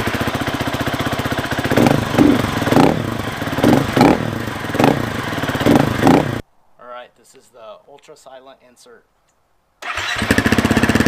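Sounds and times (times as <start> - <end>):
dirt bike engine revving: 0.0 - 6.4, 9.8 - 11.0.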